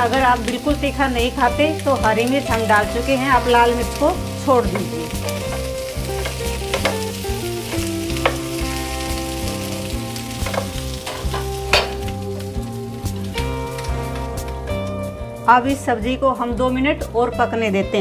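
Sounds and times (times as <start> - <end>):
vegetables sizzling in a frying pan: 0.0 - 14.8
spatula knocking on pan: 4.7 - 8.5, 10.4 - 12.2.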